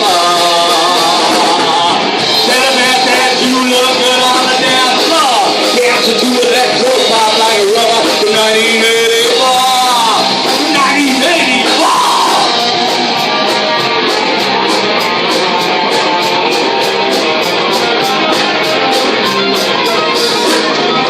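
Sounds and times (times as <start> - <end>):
person singing: 0.0 - 12.8
electric guitar: 0.0 - 21.0
steady drum beat: 0.0 - 21.0.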